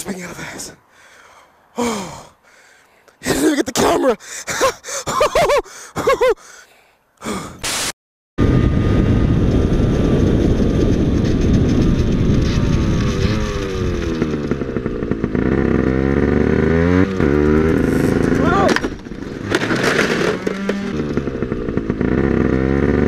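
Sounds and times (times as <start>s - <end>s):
wind noise on helmet: 8.4s - 15.7s
small motorbike engine running: 8.4s - 23.0s.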